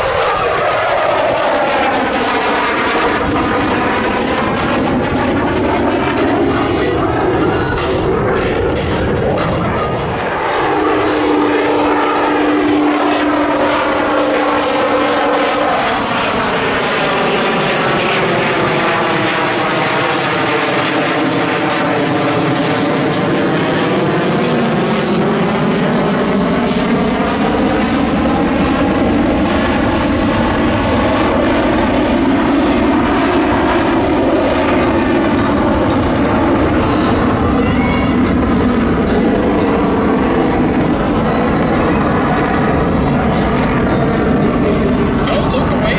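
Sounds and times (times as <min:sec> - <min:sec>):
steady hum: 0:00.0 - 0:17.0
aircraft flying overhead: 0:00.0 - 0:45.9.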